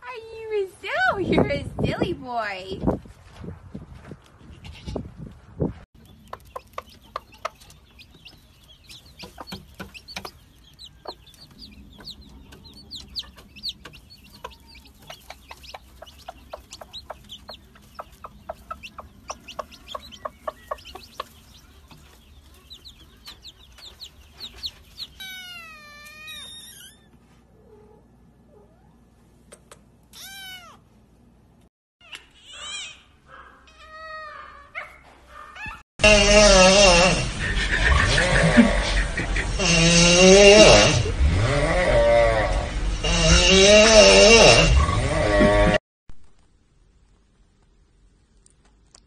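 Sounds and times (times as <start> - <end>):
chicks cheeping: 6.0 - 27.0.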